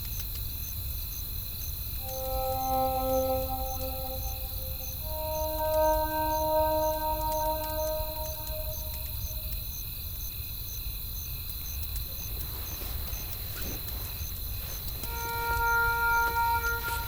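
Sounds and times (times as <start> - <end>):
crickets chirping: 0.0 - 17.0
soft held musical note: 2.0 - 9.5, 15.1 - 17.0.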